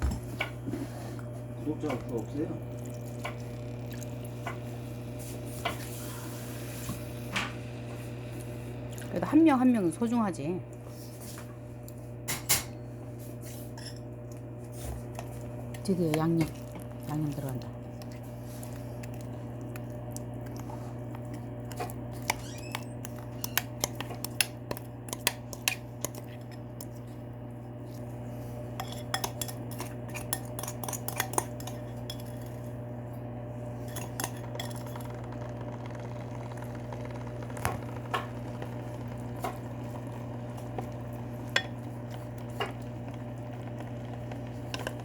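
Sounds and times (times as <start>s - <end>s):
steady low hum: 0.0s - 45.0s
metal utensils clinking on bowls: 28.8s - 32.7s.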